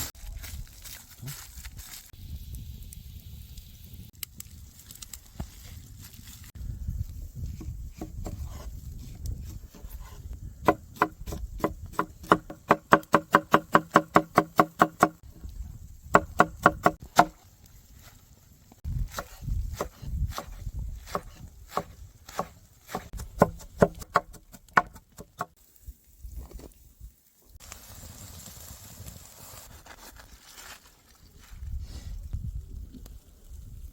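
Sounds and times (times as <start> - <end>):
knife chopping on wooden board: 7.6 - 8.6, 9.7 - 15.2, 16.2 - 17.4, 19.1 - 25.5.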